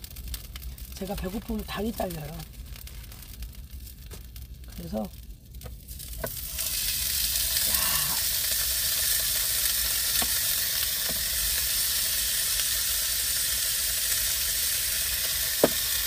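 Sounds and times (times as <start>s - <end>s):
meat sizzling in a frying pan: 0.0s - 16.0s.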